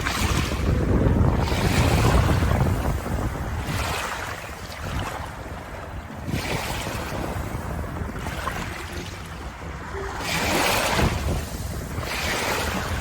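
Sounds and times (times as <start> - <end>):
waves washing in: 0.0 - 13.0.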